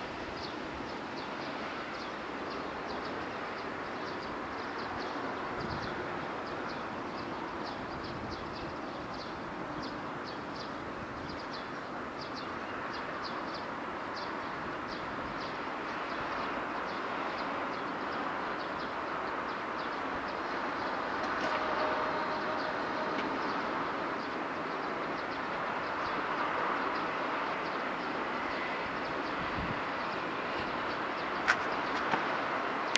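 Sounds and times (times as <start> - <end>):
distant electric train rumbling: 0.0 - 32.9.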